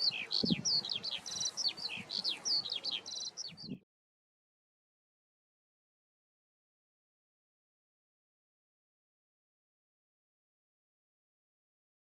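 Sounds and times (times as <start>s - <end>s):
songbird singing: 0.0s - 3.8s.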